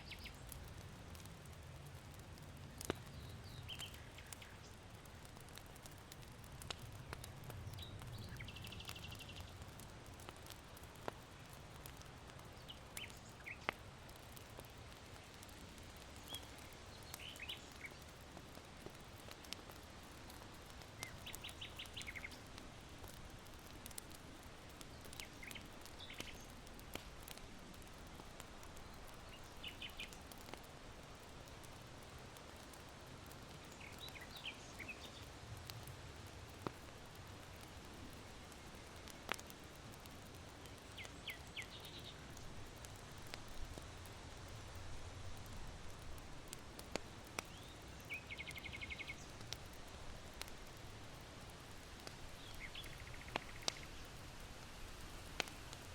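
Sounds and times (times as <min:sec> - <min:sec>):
small birds chirping: 0:00.0 - 0:01.6, 0:02.6 - 0:30.6, 0:31.7 - 0:35.9, 0:40.3 - 0:42.5, 0:46.8 - 0:50.9, 0:52.0 - 0:54.2
charcoal embers crackling: 0:00.0 - 0:55.9.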